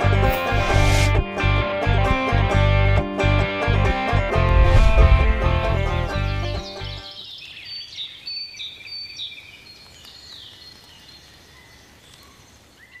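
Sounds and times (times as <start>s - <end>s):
plucked-string theme music: 0.0s - 7.2s
birds chirping: 4.7s - 13.0s.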